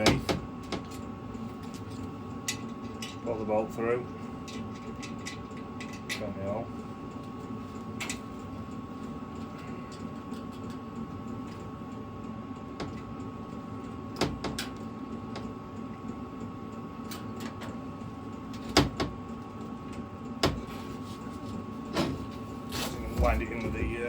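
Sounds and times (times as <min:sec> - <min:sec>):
steady background hum: 0:00.0 - 0:24.0
metal parts clicking and knocking: 0:04.4 - 0:06.2.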